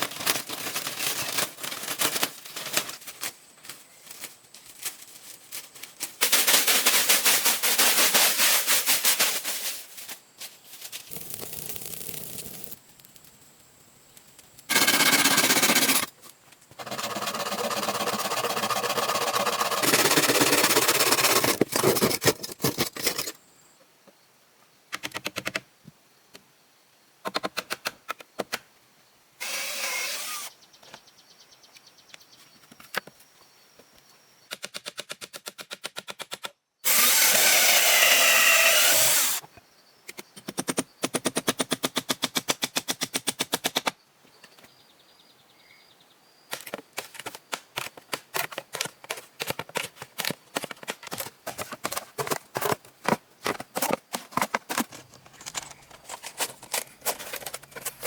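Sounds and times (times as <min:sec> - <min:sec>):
harsh rasping noise: 0:14.7 - 0:16.1, 0:16.8 - 0:22.4, 0:36.9 - 0:39.4.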